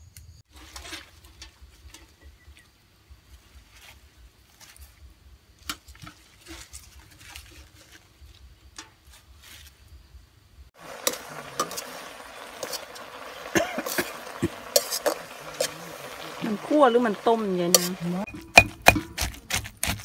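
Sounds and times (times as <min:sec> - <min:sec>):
metal spatula scraping a pan: 0:00.5 - 0:02.4, 0:10.8 - 0:20.0
leafy greens rustling: 0:00.5 - 0:09.9, 0:10.8 - 0:20.0
food sizzling in a wok: 0:10.8 - 0:19.2.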